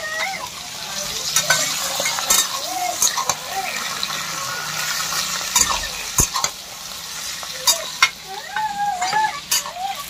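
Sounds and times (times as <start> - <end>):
meat and onions sizzling in oil: 0.0 - 10.0
metal spatula scraping a pan: 1.0 - 6.6.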